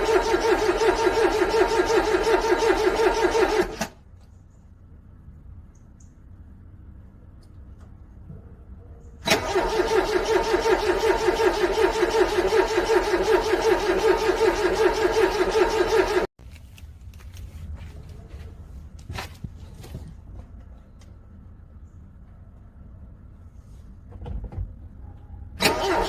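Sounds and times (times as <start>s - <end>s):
starter motor cranking car engine: 0.0s - 4.0s, 9.2s - 16.3s, 25.6s - 26.0s.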